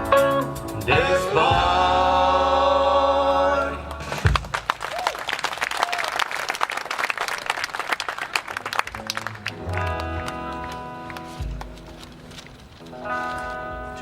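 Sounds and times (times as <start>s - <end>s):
audience applauding: 3.8s - 12.1s.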